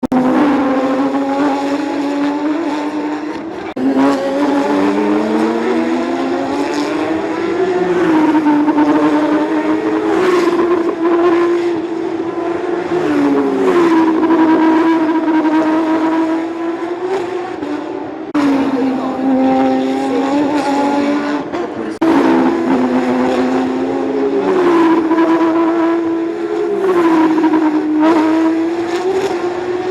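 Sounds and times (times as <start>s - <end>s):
race car engines running hard: 0.0s - 29.9s.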